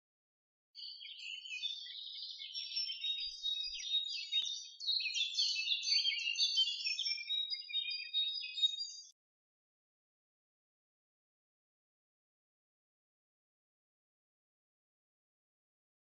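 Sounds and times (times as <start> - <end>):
songbirds singing: 0.8 - 9.2.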